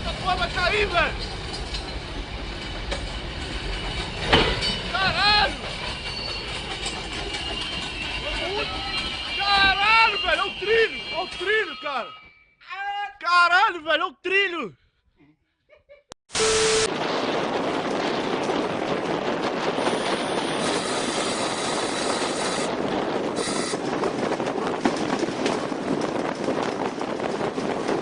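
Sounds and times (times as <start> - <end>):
train rumbling past: 0.0 - 11.9, 16.4 - 28.0
loud steady tone burst: 16.3 - 17.0.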